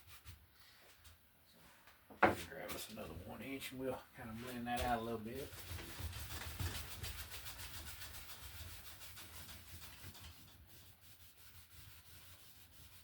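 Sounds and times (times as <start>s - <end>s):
brush scrubbing on canvas: 4.3s - 13.0s.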